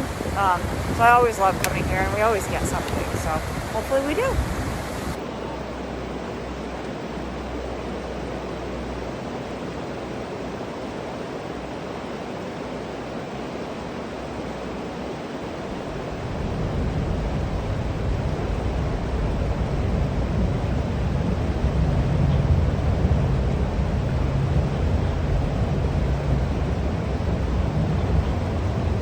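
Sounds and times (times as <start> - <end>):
low rumble: 0.0 - 9.4, 15.6 - 29.0
river water rushing: 0.0 - 29.0.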